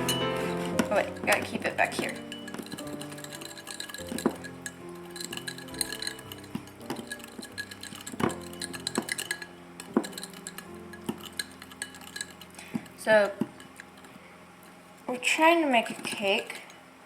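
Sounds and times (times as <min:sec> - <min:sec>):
utensil clinking in batter dish: 0:00.0 - 0:14.3, 0:15.7 - 0:16.8.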